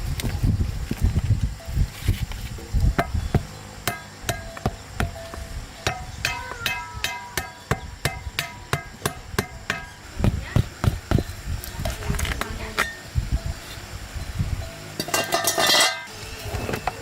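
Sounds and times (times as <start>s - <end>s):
hammer blows on metal: 2.9s - 13.6s.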